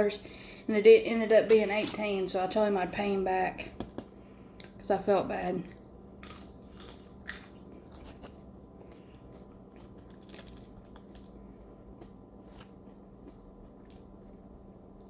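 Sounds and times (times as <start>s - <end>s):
person chewing food: 5.6s - 15.0s.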